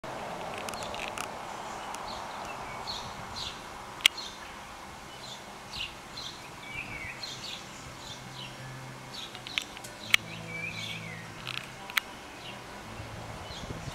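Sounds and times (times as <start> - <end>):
steady outdoor hiss: 0.0 - 13.9
small birds chirping: 0.2 - 13.9.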